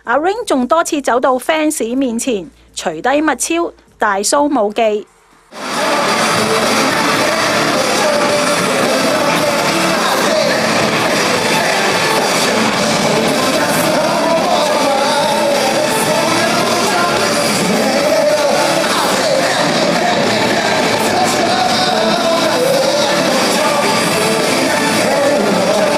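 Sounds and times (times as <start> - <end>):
live pop concert music: 5.5 - 25.9
person singing: 5.5 - 25.9.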